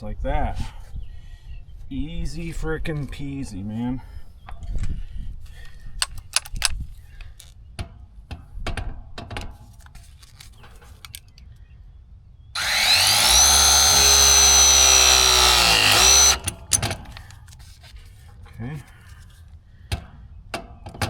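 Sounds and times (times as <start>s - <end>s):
tools and parts clicking: 6.0s - 7.5s, 9.8s - 11.4s, 12.6s - 17.4s
power tool motor running: 12.6s - 16.9s.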